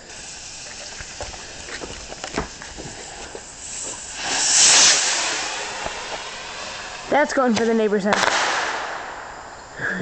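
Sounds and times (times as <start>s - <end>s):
faint steady hiss: 0.0s - 10.0s
firework rushing hiss: 0.0s - 10.0s
footsteps crunching: 0.8s - 4.1s.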